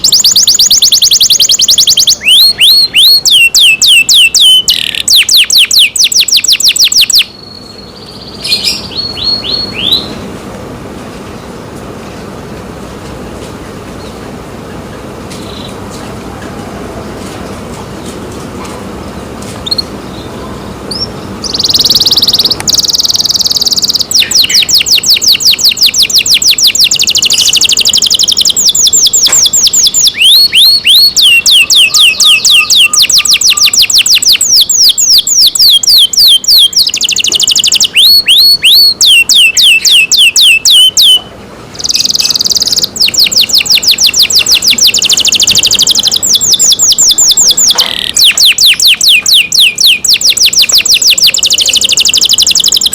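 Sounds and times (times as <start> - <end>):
canary singing trills: 0.0 - 10.3, 19.2 - 52.9.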